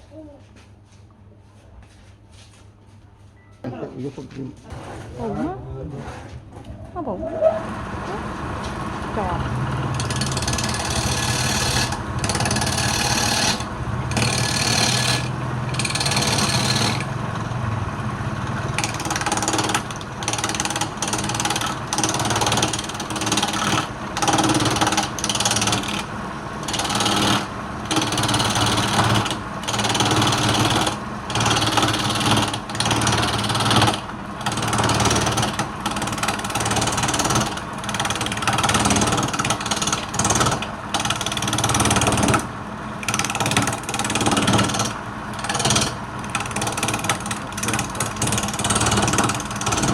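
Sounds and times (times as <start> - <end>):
turning tool scraping wood: 4.6 - 5.3, 10.0 - 17.2
lathe motor humming: 7.6 - 49.9.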